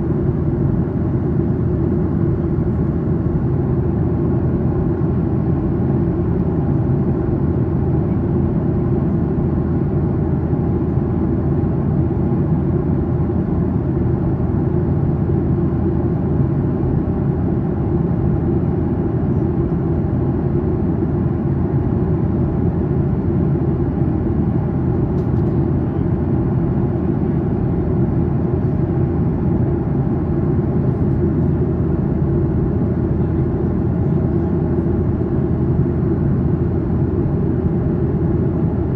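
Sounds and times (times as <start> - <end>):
airplane cabin engine drone: 0.0 - 38.9
faint click: 25.2 - 25.6.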